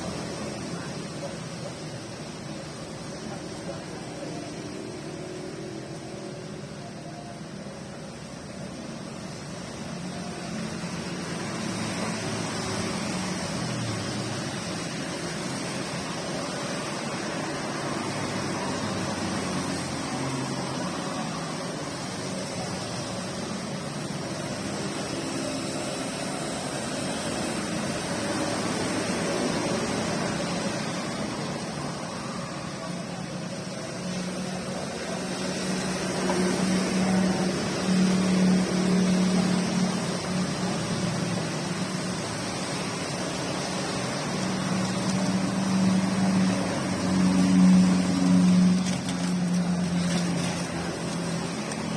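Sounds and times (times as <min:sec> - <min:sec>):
steady rain hissing: 0:00.0 - 0:51.9.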